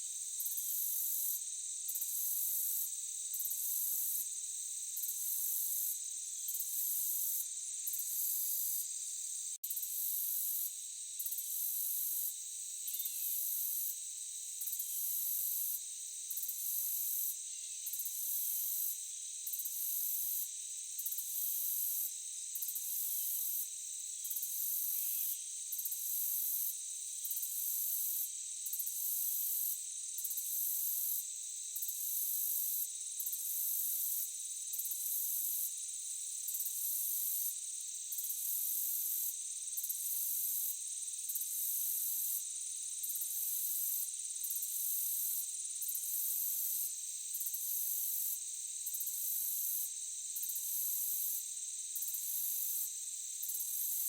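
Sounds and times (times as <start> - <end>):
insects trilling: 0.1 - 54.0
insects chirping in pulses: 12.6 - 14.0.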